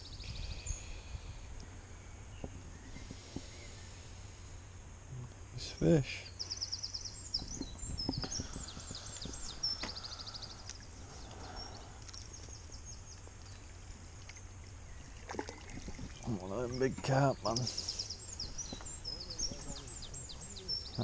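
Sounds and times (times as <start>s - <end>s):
songbird trilling: 5.6s - 15.3s, 15.9s - 21.0s.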